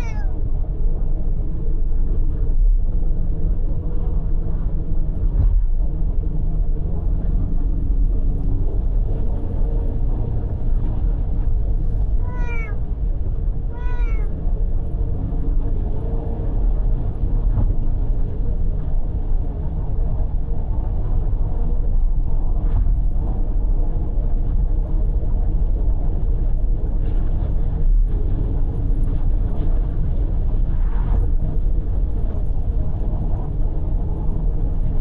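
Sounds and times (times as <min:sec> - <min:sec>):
cat meowing: 0:00.0 - 0:00.4, 0:12.2 - 0:12.8, 0:13.7 - 0:14.3
car driving rumble: 0:07.0 - 0:14.7.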